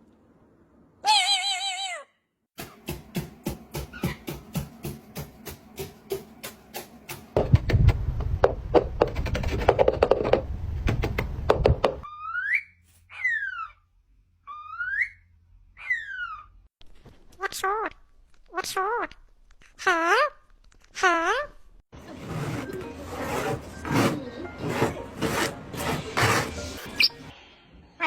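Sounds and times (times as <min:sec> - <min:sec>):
parrot whistling: 0:14.5 - 0:15.2
rustling: 0:22.1 - 0:27.1.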